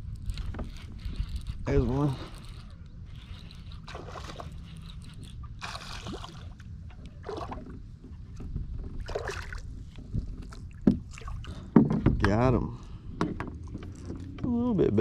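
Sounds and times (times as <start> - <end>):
fish splashing in water: 5.6 - 6.6.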